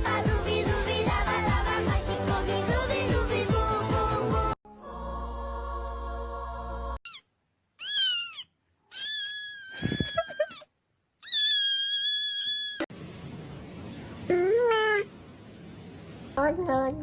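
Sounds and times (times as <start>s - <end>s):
cat meowing: 7.0s - 7.2s, 7.8s - 10.5s, 11.2s - 12.8s.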